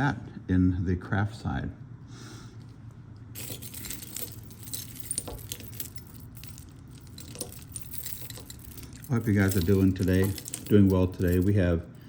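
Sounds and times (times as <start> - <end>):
jewelry clinking and jingling: 3.3 - 12.0.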